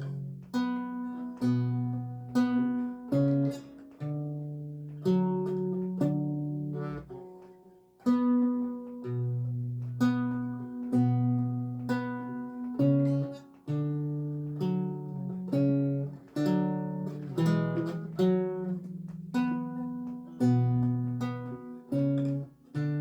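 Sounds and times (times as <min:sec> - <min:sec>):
solo lute music: 0:00.0 - 0:23.0.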